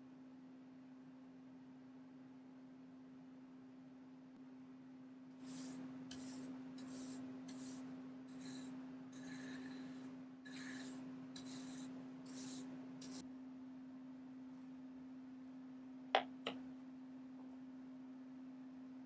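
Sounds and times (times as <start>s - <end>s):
steady low hum: 4.3s - 19.0s
abrasive scrubbing strokes on metal: 5.4s - 13.2s.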